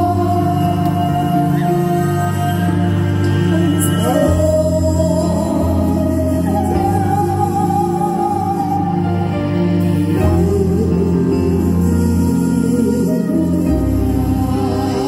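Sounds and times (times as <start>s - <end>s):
low instrumental accompaniment: 0.0s - 15.0s.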